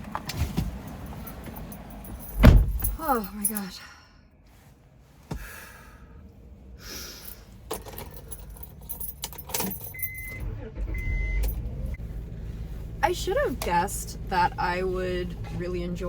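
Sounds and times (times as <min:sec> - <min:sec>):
keys jangling: 0:01.0 - 0:03.6, 0:07.2 - 0:10.4.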